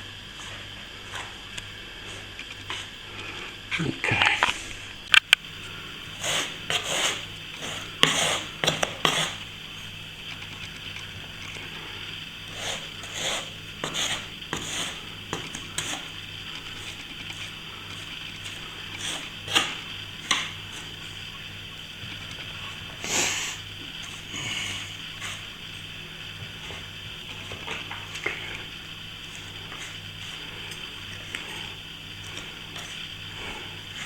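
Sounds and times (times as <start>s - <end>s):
tools scraping wet plaster: 6.0s - 9.5s, 12.4s - 21.2s, 22.1s - 25.5s, 26.6s - 34.0s.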